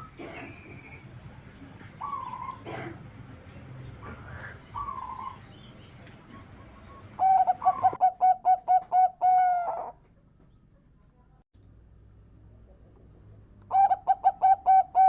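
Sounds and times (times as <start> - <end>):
dove cooing: 1.8 - 3.2, 3.8 - 10.0, 13.7 - 15.0.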